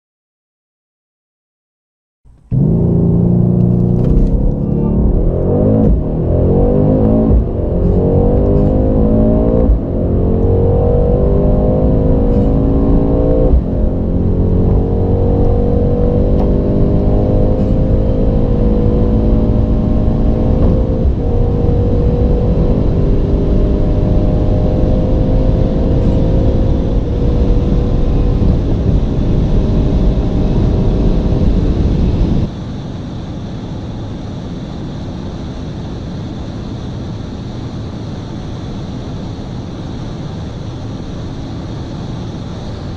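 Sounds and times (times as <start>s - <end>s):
car engine accelerating: 2.3s - 32.6s
wind and road noise: 2.3s - 42.9s.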